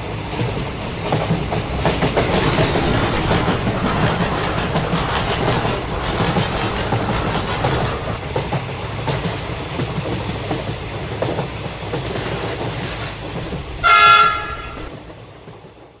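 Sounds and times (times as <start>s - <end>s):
train rumbling on rails: 0.0s - 16.0s
train horn blast: 13.8s - 14.9s.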